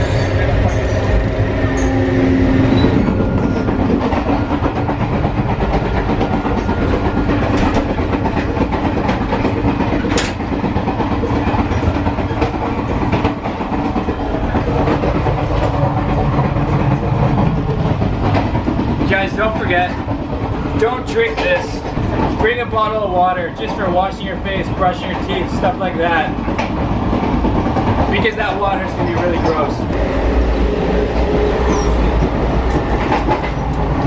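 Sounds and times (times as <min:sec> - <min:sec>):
low hum: 0:00.0 - 0:08.0, 0:29.9 - 0:34.0
train wheels clattering over rails: 0:00.0 - 0:34.0.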